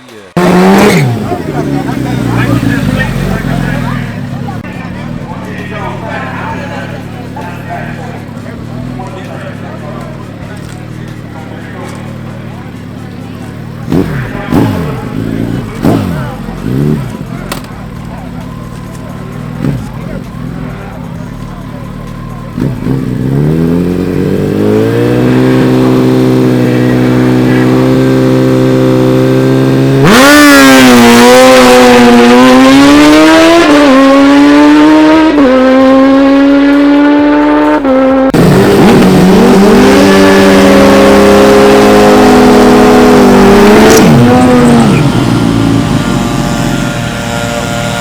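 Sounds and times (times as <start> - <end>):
racing engines revving: 0.0 - 48.0.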